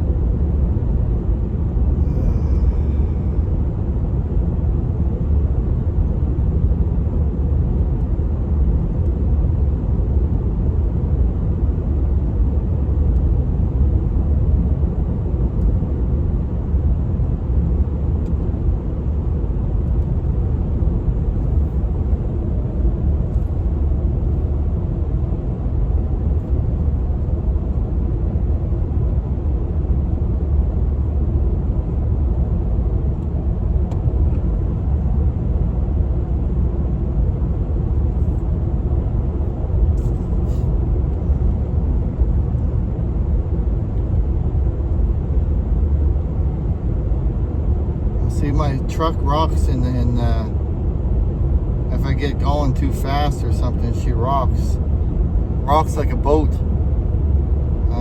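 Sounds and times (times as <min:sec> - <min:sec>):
road noise: 0:00.6 - 0:04.6, 0:32.5 - 0:58.0
truck engine rumble: 0:47.4 - 0:58.0.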